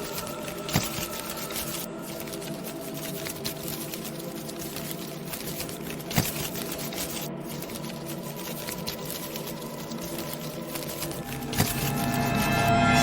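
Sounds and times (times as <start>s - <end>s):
fine ticking and patter: 0.0s - 12.7s.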